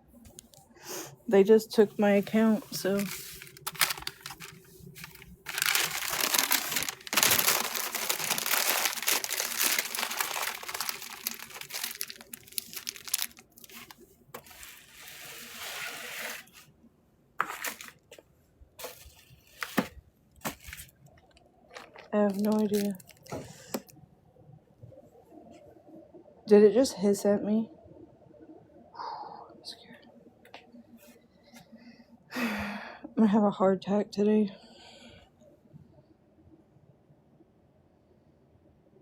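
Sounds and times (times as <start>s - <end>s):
crinkling and rustling handling: 1.4s - 16.8s, 17.4s - 24.0s.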